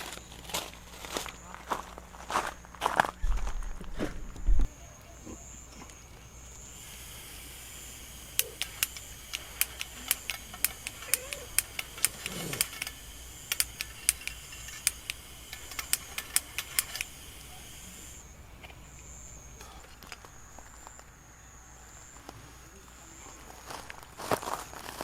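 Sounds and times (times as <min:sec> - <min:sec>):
faint high-pitched hiss: 0:04.0 - 0:25.0
sharp irregular clicks: 0:05.9 - 0:20.3.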